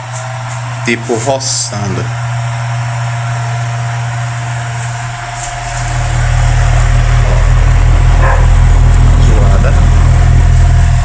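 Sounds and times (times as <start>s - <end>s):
electric fan motor hum: 0.0s - 11.0s
bearing rubbing noise: 5.8s - 11.0s.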